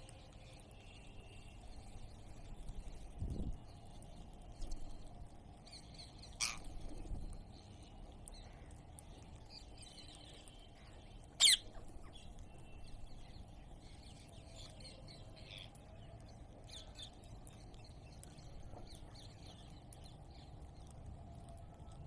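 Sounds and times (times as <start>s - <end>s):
birds chirping and chattering: 0.1s - 22.0s
parrot squawk: 11.4s - 11.6s.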